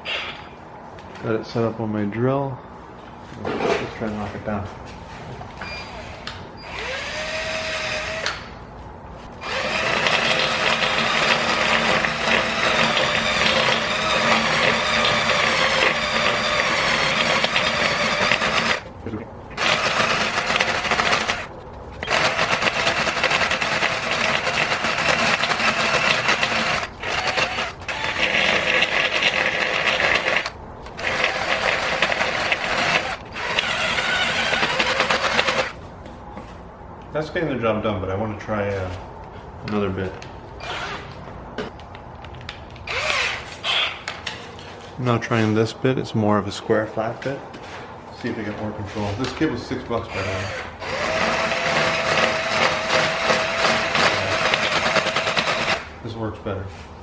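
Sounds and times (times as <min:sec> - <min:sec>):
electric drill grinding metal: 0:06.6 - 0:08.4, 0:09.4 - 0:18.9, 0:19.6 - 0:35.8, 0:42.9 - 0:43.6, 0:50.1 - 0:55.9.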